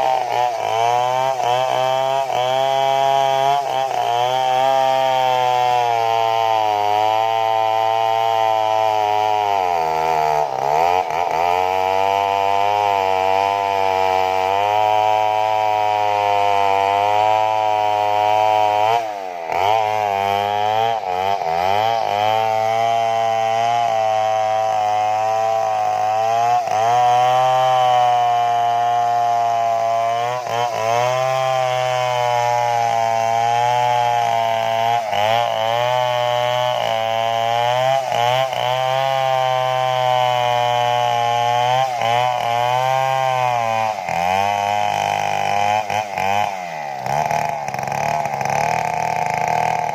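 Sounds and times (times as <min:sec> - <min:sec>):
chainsaw cutting tree trunk: 0:00.0 - 0:49.9.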